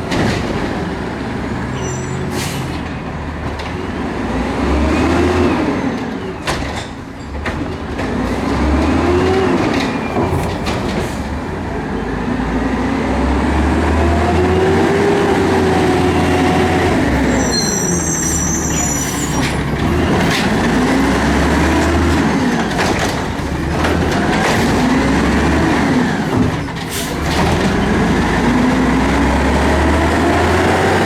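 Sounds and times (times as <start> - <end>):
garbage truck engine revving: 0.0 - 6.2, 7.6 - 31.0
sharp knocks and clanks: 21.7 - 25.4.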